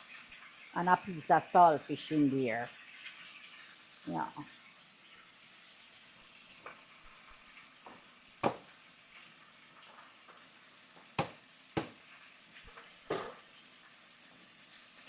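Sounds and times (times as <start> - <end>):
food sizzling in a pan: 0.0 - 15.0
utensils and dishes knocking: 8.4 - 8.7, 11.0 - 12.0, 13.1 - 13.4.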